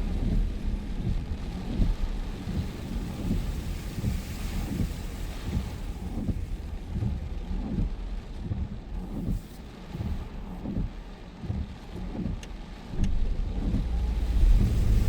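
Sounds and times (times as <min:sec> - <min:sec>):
heavy rain hissing: 0:12.8 - 0:15.0
wind buffeting microphone: 0:12.8 - 0:15.0.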